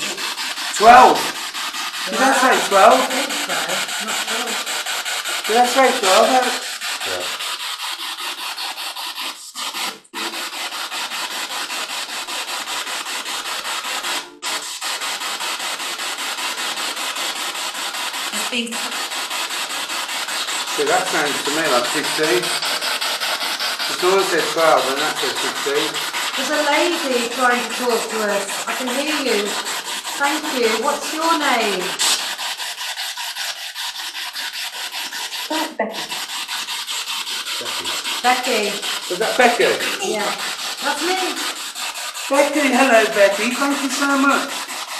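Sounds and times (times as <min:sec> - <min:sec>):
chopped radio static pulsing: 0:02.1 - 0:04.6.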